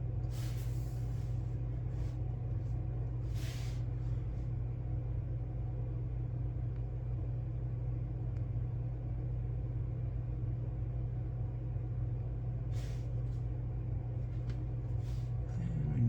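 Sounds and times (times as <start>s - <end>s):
low room hum: 0.0s - 16.0s
short soft hisses: 0.3s - 1.3s.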